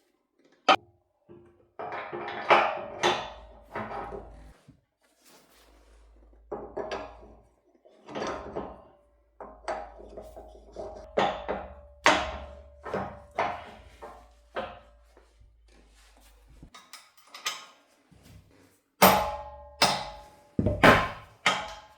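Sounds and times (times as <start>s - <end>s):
metal clanks and knocks: 6.5s - 7.4s, 8.1s - 14.9s, 19.0s - 21.9s.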